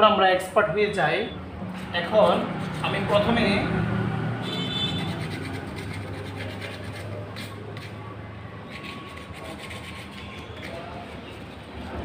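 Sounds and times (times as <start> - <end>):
scraping on pipework: 4.9 - 12.0.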